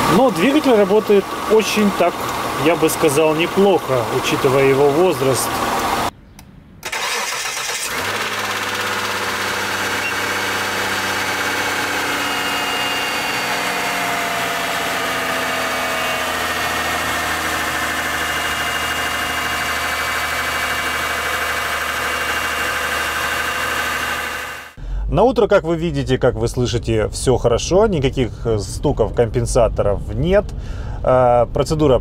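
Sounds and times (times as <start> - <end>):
car engine idling: 0.0 - 6.1, 6.9 - 25.1
starter motor cranking: 6.8 - 24.7.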